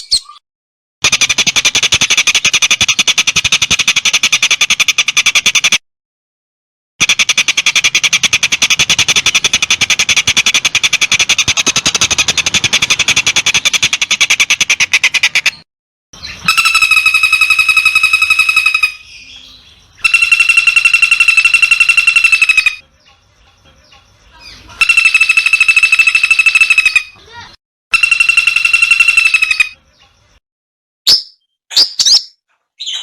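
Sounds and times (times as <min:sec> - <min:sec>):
buzzy calls: 0:07.0 - 0:15.6, 0:16.2 - 0:19.3, 0:20.0 - 0:30.4
rapid dry trill: 0:20.0 - 0:22.8, 0:24.8 - 0:27.1.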